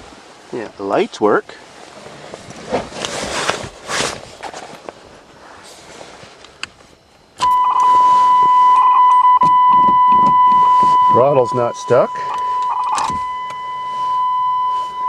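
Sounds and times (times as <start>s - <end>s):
rustling and handling noises: 1.7s - 7.2s
car warning buzzer tone: 7.4s - 15.0s.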